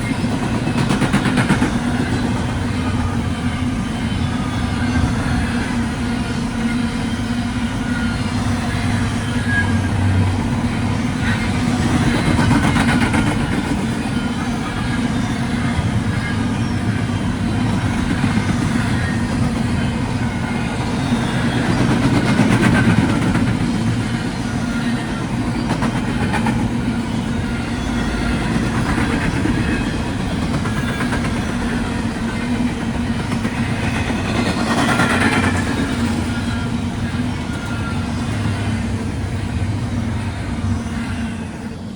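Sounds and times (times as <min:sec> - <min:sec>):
freight train wheels rumbling: 0:00.0 - 0:41.9.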